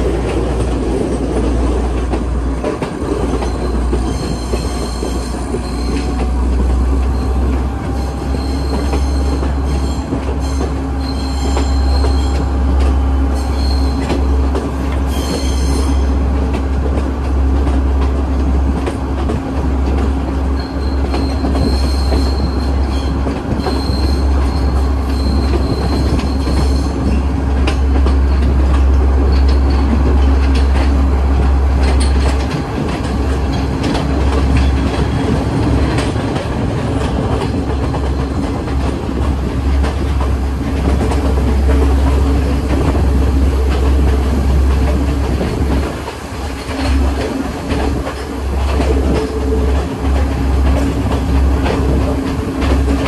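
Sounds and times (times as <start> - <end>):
train rumble and hum: 0.0 - 53.0
wheels clicking over rail joints: 0.0 - 53.0
high thin wheel squeal: 3.4 - 6.1, 7.1 - 12.4, 13.3 - 14.2, 20.6 - 27.2.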